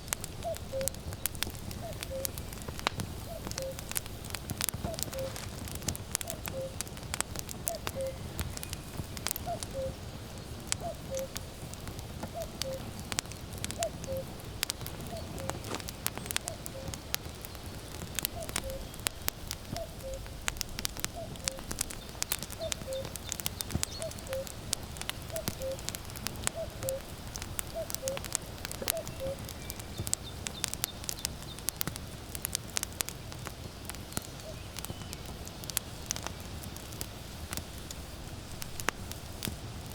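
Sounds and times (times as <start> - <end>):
wood fire crackling: 0.0 - 39.9
cuckoo calling: 0.2 - 4.0, 4.8 - 5.6, 6.2 - 6.9, 7.6 - 10.1, 10.8 - 11.4, 12.2 - 13.0, 13.7 - 17.1, 18.2 - 19.1, 19.7 - 20.3, 21.1 - 21.8, 22.5 - 24.6, 25.2 - 27.1, 27.7 - 30.0.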